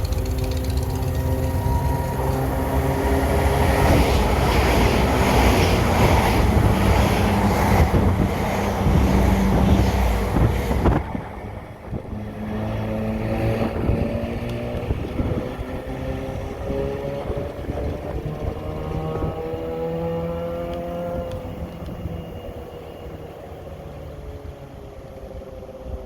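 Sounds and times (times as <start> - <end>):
engine droning: 0.0 - 6.0
train passing rumbling: 0.0 - 26.0.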